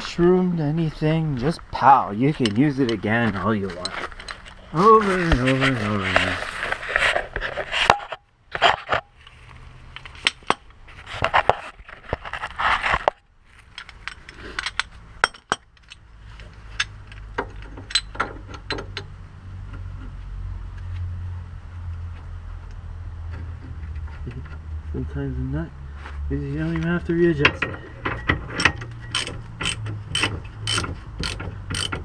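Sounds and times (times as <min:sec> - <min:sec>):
metal tools clinking and scraping: 0:02.2 - 0:09.4, 0:11.2 - 0:19.1, 0:26.6 - 0:32.0.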